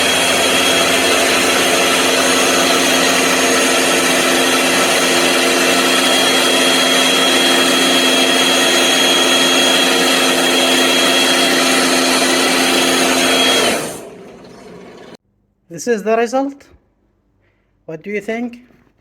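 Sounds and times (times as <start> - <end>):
electric motor humming with whine: 0.0 - 15.2.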